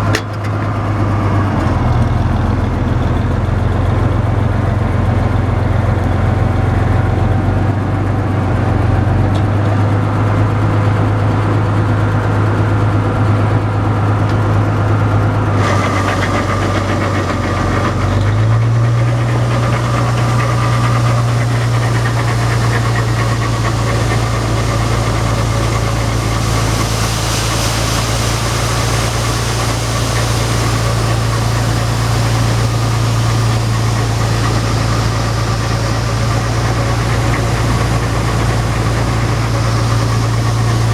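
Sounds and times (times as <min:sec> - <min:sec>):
combine harvester engine running: 0:00.0 - 0:40.9
hiss and rattle: 0:15.5 - 0:40.9.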